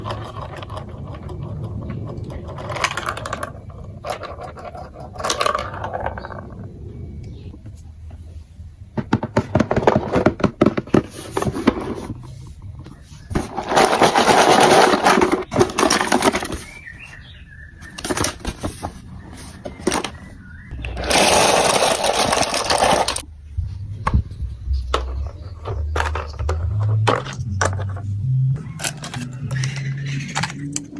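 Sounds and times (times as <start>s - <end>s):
marble run clicking and rattling: 0.0s - 6.7s, 13.6s - 16.6s, 21.0s - 23.2s.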